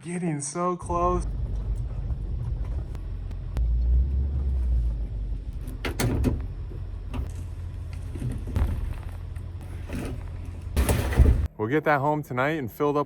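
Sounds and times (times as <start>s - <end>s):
road and engine rumble: 0.8s - 11.6s
short rattles and knocks: 5.6s - 11.5s.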